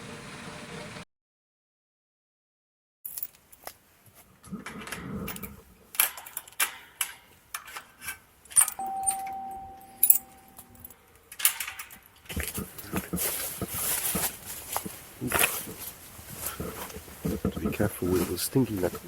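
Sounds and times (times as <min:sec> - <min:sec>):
keys jangling: 0:05.3 - 0:12.2
steady single tone: 0:08.8 - 0:11.0.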